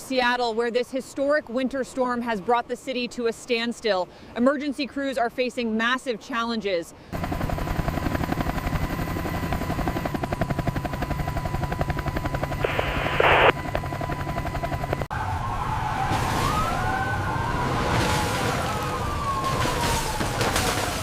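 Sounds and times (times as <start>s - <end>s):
helicopter rotor chopping: 7.1s - 15.8s, 18.6s - 21.0s
siren wailing: 11.8s - 21.0s
loud burst of noise: 12.6s - 13.5s.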